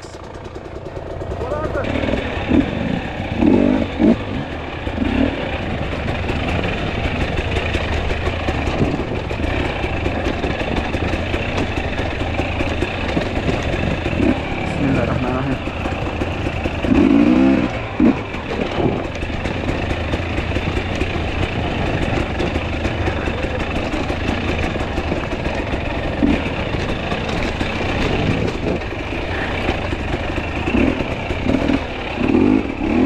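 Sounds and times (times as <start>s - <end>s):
dirt bike engine droning: 0.0s - 33.0s.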